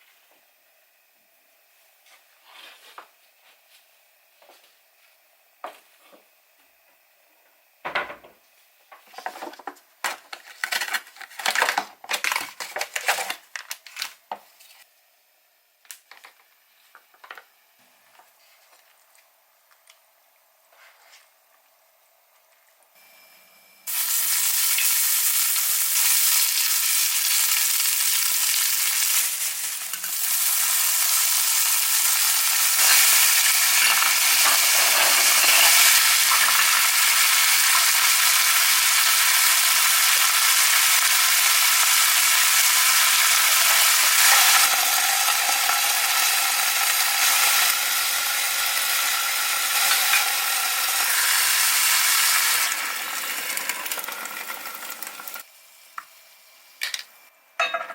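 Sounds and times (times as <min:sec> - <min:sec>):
food sizzling in frying pan: 0:23.9 - 0:57.0.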